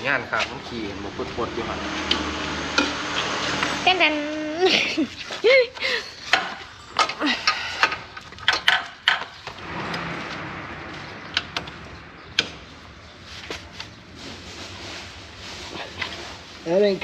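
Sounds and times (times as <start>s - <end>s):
hand tools clicking on metal: 6.3s - 9.5s.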